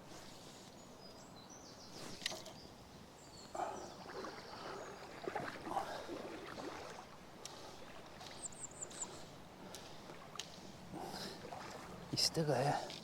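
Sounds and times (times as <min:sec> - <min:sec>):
river water splashing: 0:03.6 - 0:13.0.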